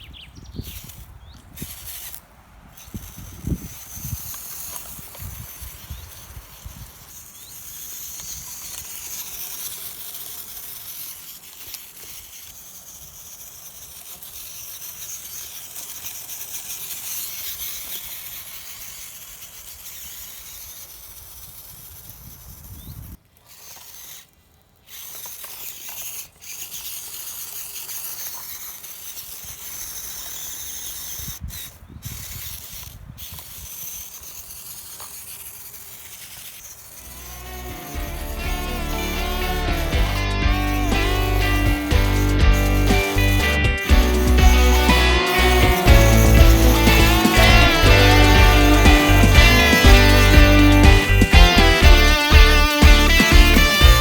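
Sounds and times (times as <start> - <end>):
toy car motor and gears whirring: 0.0 - 54.0
high hiss: 36.9 - 54.0.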